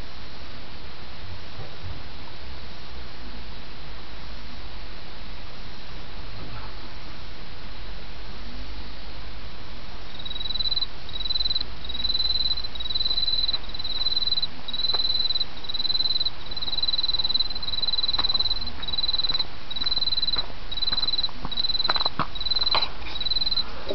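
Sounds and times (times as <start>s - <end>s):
insect trilling: 10.1s - 23.7s.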